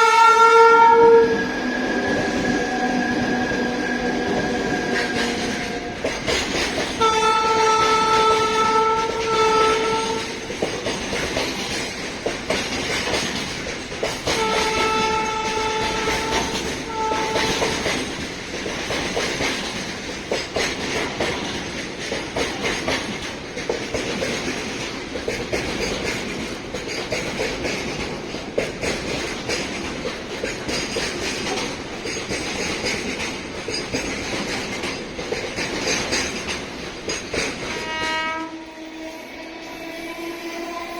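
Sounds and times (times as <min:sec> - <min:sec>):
locomotive horn blasts: 0:00.0 - 0:01.5, 0:07.0 - 0:10.4, 0:14.3 - 0:17.9, 0:37.6 - 0:40.9
train wheels clattering over rail joints: 0:02.0 - 0:38.4.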